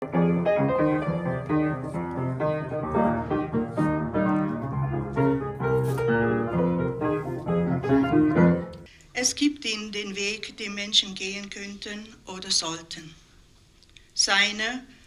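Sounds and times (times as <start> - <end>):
solo piano playing: 0.0 - 8.9.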